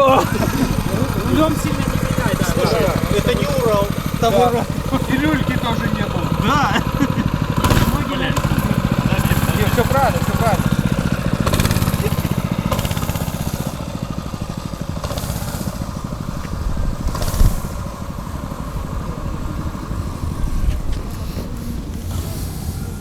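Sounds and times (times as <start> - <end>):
small scooter engine running: 0.0 - 23.0.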